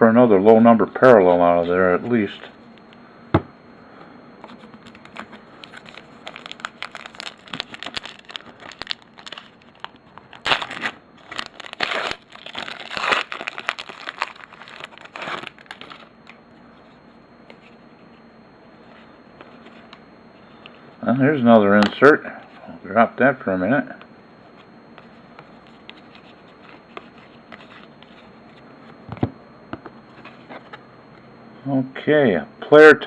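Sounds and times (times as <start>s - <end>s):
foil wrapper tearing and crinkling: 5.0s - 16.4s.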